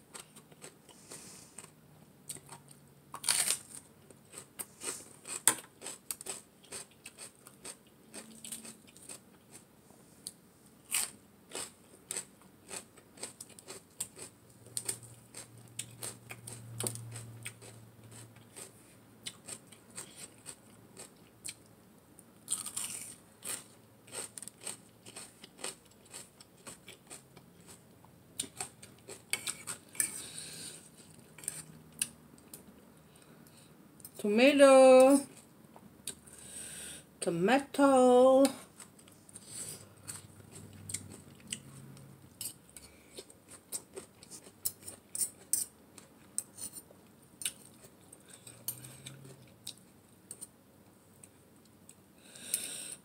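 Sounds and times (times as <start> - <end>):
crunching and chewing: 0.1 - 33.3, 38.6 - 50.5.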